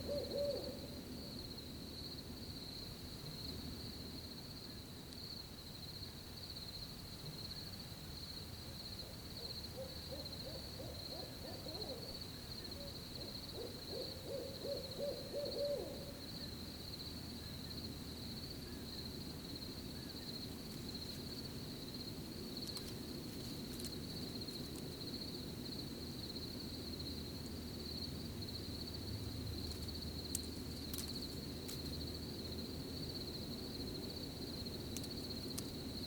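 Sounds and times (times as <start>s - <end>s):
owl hooting trill: 0.0s - 1.0s, 9.0s - 16.2s
crickets chirring: 0.0s - 36.0s.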